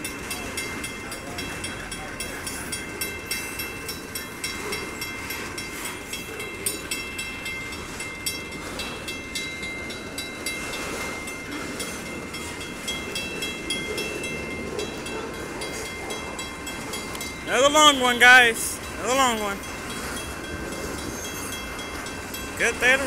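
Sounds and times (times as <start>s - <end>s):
crossing bell dinging: 0.0s - 23.0s
train wheels clattering on rails: 0.0s - 23.0s.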